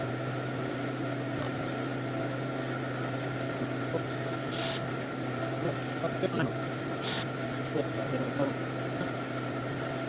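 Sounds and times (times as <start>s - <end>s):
low mechanical hum: 0.0s - 10.0s
short hiss: 4.5s - 4.8s, 7.0s - 7.3s.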